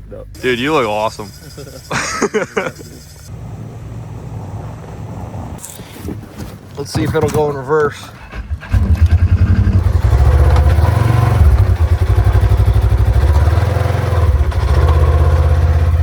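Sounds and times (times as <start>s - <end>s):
side-by-side engine revving loud: 8.7s - 16.0s.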